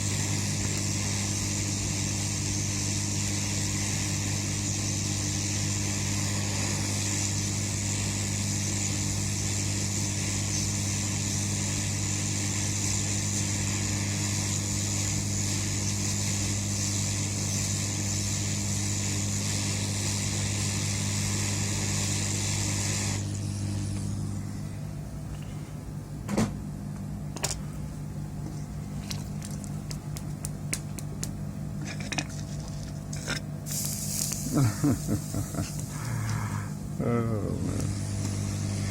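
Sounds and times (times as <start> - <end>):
electric blower running: 0.0 - 24.8, 33.7 - 38.9.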